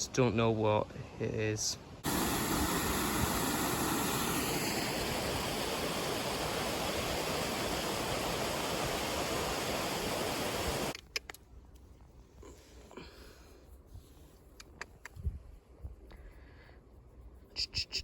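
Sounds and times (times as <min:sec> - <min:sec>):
rushing water: 0:01.6 - 0:11.0.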